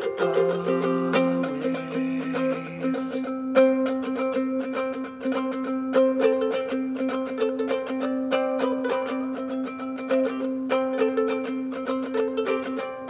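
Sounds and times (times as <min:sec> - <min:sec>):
long held notes: 0:00.0 - 0:06.5
strummed string instruments: 0:00.0 - 0:13.0.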